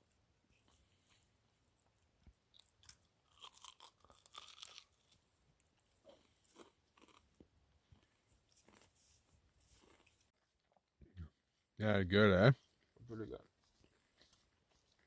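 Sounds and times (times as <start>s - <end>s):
person chewing and crunching: 2.5s - 10.8s.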